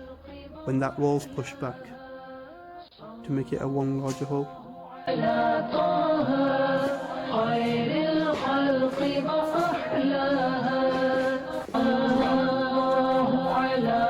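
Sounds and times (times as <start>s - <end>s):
unaccompanied devotional singing: 0.0s - 14.0s.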